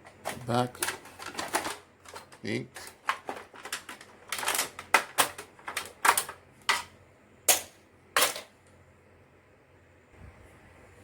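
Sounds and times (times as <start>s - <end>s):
plastic parts clicking and snapping: 0.0s - 8.5s.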